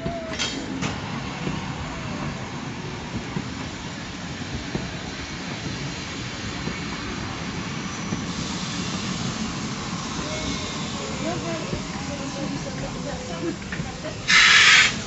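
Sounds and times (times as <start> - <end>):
train rumbling on track: 0.0 - 15.0
high hiss: 7.0 - 15.0.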